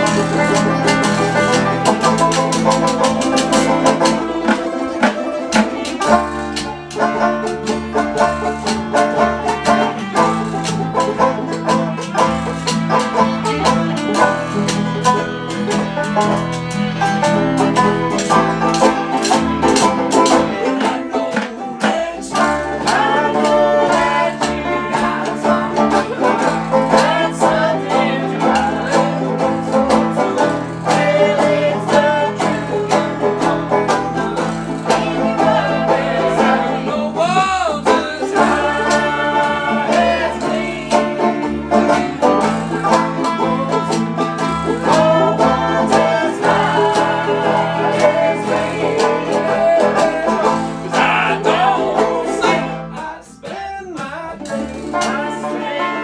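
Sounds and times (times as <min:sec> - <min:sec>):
banjo picking: 0:00.0 - 0:56.0
guitar: 0:00.0 - 0:56.0
bass line: 0:21.9 - 0:53.1.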